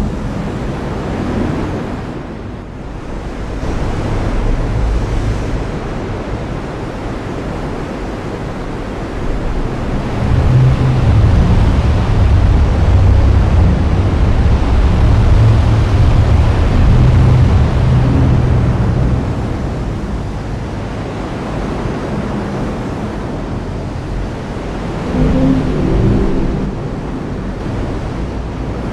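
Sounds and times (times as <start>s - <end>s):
thunder rumbling: 8.6s - 28.9s.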